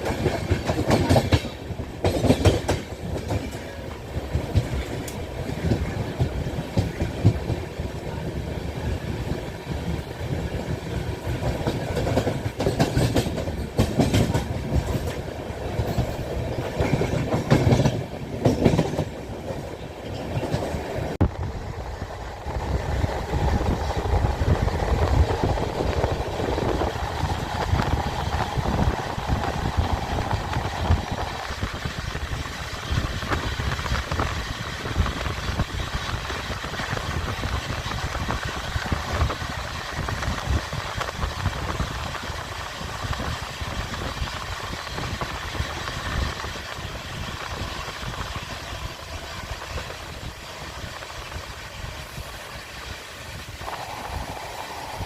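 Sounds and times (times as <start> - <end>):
train rumbling on rails: 0.0 - 55.0
higher hum: 53.6 - 55.0.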